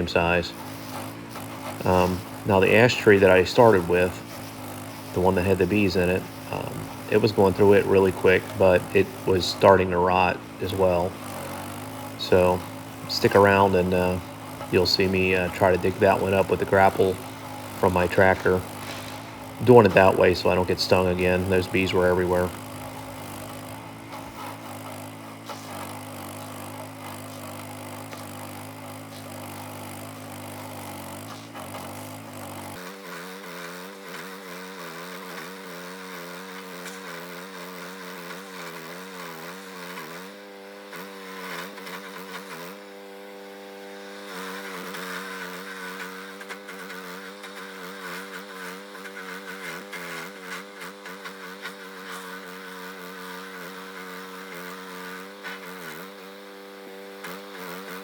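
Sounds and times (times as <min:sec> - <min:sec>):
engine running: 0:00.0 - 0:58.0.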